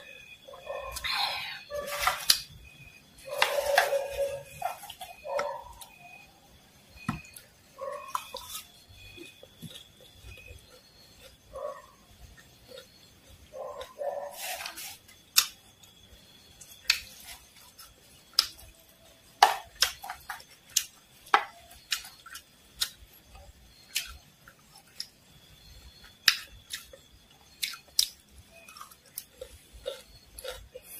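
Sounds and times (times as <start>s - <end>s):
crunching fried insects: 0.0s - 30.9s.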